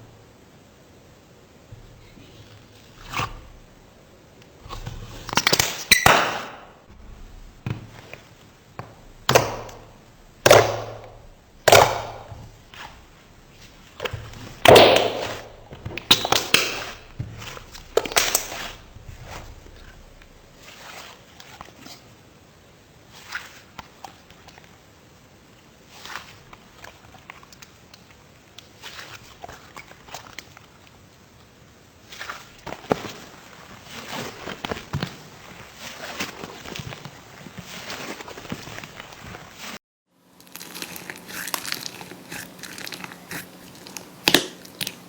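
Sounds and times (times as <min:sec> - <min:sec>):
slime crackling: 0:04.6 - 0:20.6, 0:40.4 - 0:45.0.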